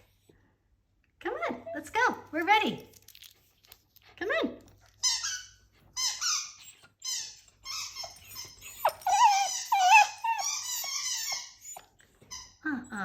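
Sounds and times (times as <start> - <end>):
small dog whining: 6.0 - 13.0.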